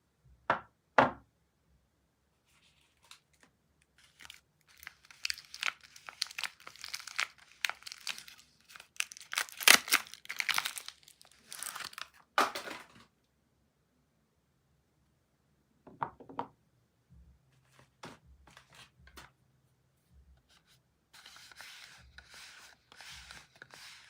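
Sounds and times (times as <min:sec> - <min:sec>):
soap wrapper crinkling and tearing: 0:04.0 - 0:12.2.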